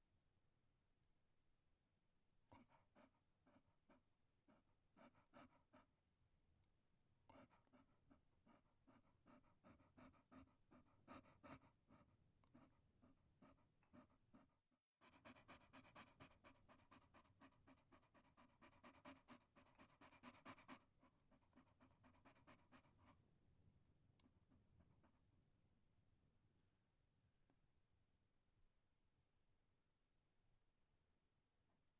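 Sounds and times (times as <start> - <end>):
dog panting: 2.5 - 6.0, 7.3 - 23.5.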